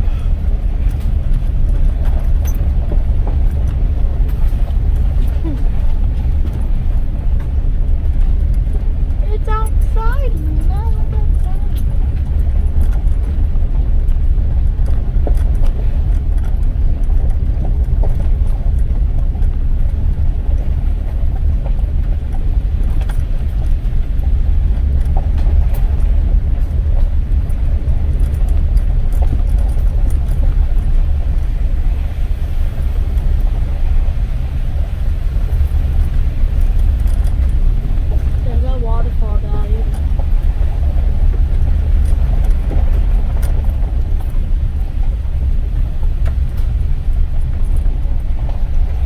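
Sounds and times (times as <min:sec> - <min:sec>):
car engine and road noise: 0:00.0 - 0:49.0.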